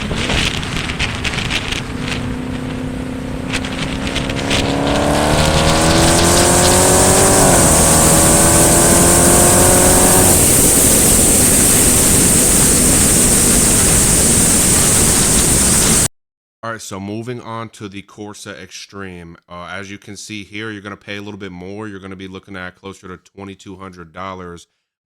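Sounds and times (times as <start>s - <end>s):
car exhaust accelerating hard: 0.0s - 16.1s
rushing wind and road noise: 0.0s - 16.1s.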